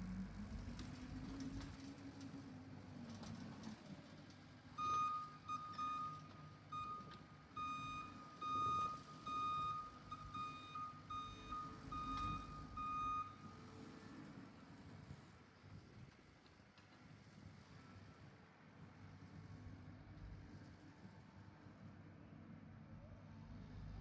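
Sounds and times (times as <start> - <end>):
machine engine running: 0.0 - 1.9
reversing alarm beeping: 4.8 - 13.4.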